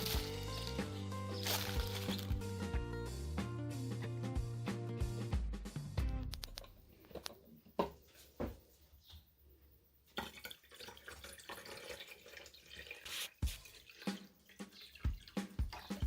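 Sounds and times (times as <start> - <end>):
liquid trickling and dripping: 10.1 - 16.0.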